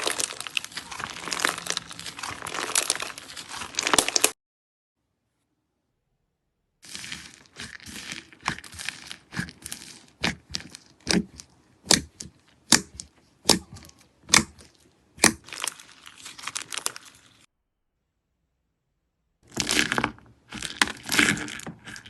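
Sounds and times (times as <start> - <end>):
slime crackling: 0.0 - 4.4, 6.8 - 17.5.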